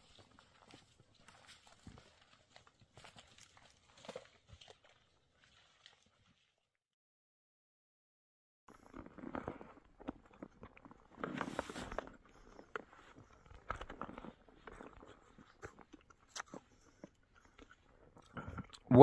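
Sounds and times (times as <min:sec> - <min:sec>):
chewing snow crunching: 0:00.0 - 0:06.5, 0:08.7 - 0:18.9.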